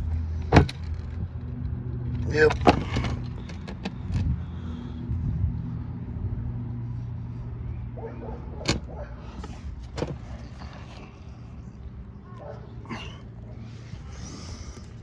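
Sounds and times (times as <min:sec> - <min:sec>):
low mechanical hum: 0:00.0 - 0:15.0
oil filter and tools clicking: 0:00.4 - 0:01.0, 0:02.2 - 0:04.3, 0:08.7 - 0:11.0.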